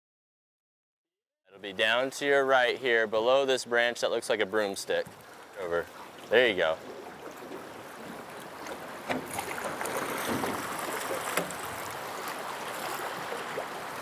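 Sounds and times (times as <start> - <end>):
river water rushing and splashing: 4.4 - 14.0.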